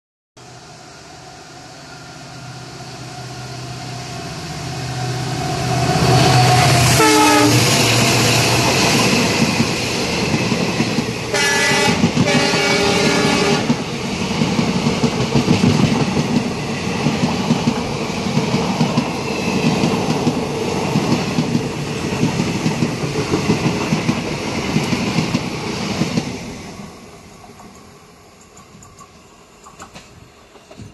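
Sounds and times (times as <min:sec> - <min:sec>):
diesel locomotive engine: 0:00.4 - 0:30.9
train horn: 0:04.3 - 0:08.3, 0:11.3 - 0:13.8
train wheels clattering on rail joints: 0:06.8 - 0:26.4, 0:27.4 - 0:30.9.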